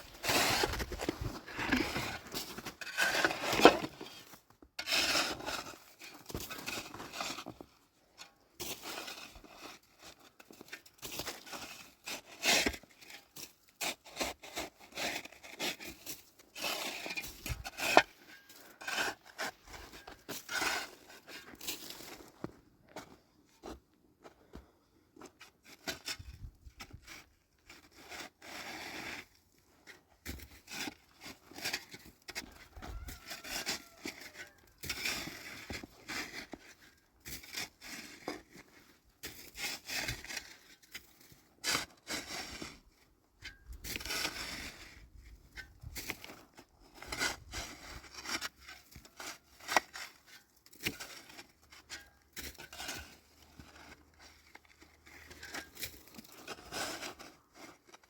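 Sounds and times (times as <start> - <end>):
rustling and scraping: 0.0 - 7.8, 43.7 - 58.0.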